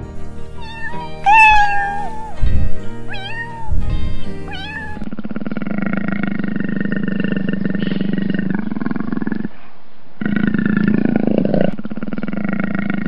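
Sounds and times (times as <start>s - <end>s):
background music: 0.0s - 5.0s
kitten meowing: 0.5s - 5.0s.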